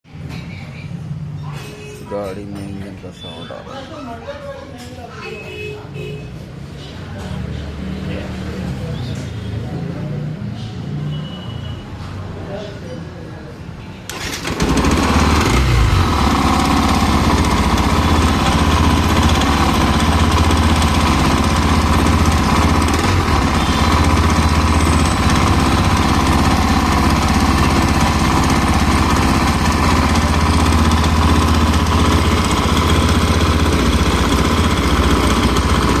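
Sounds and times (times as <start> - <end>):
motorcycle engine idling: 14.1 - 36.0.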